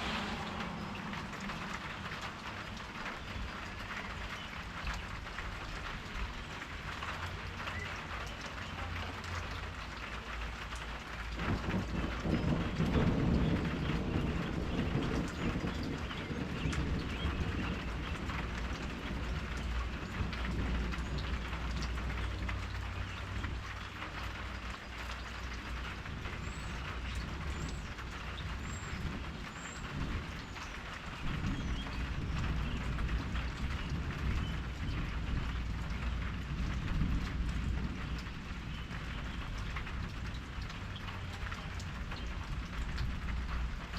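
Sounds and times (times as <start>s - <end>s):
low rumble: 0.0s - 3.9s
deeper rumble: 0.0s - 4.7s
rain falling: 0.0s - 43.9s.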